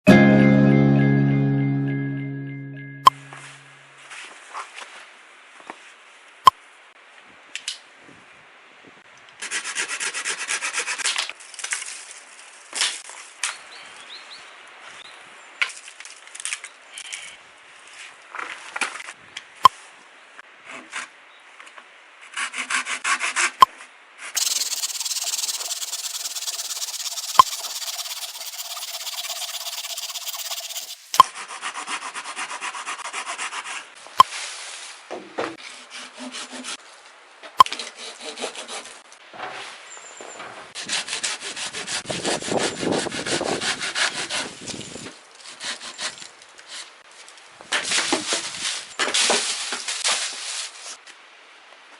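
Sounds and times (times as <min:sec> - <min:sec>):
hand saw cutting wood: 0:09.4 - 0:11.1, 0:24.4 - 0:33.8, 0:35.7 - 0:36.8, 0:37.8 - 0:38.9.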